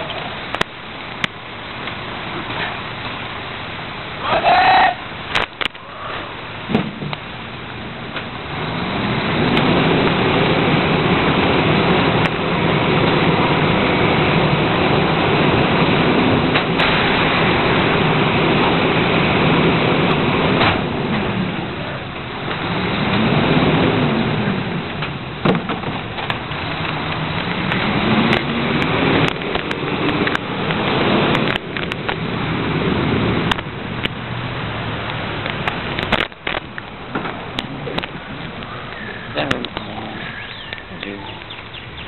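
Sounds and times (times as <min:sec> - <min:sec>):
garbage truck engine: 0:00.0 - 0:42.0
heavy hiss: 0:36.8 - 0:41.8.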